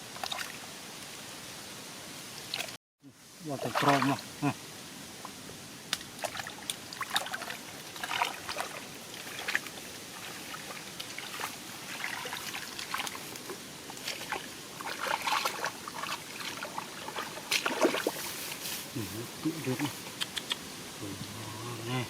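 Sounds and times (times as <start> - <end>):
shallow water splashing: 3.5 - 4.6, 6.1 - 19.9.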